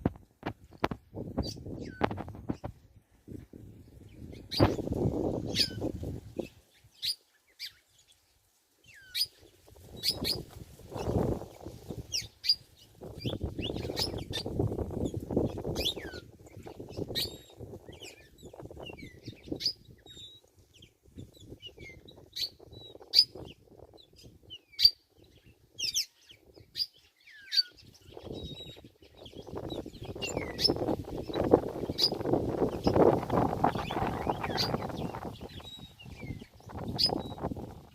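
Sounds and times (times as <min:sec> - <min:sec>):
birds chirping: 0:00.0 - 0:02.8, 0:03.8 - 0:37.9
low rustling noise: 0:00.0 - 0:22.3.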